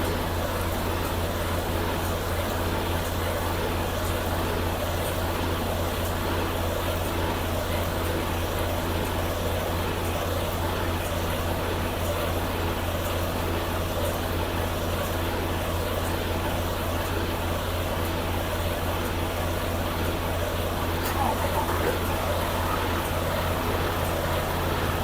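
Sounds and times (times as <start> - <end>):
diesel truck engine droning: 18.2 - 25.0
road noise: 20.6 - 25.0.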